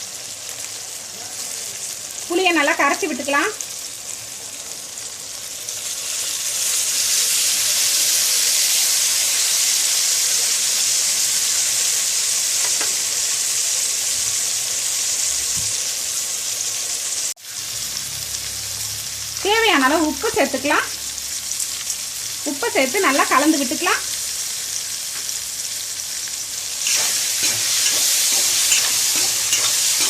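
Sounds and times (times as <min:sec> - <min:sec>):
hot oil sizzling in a pan: 0:00.0 - 0:30.0.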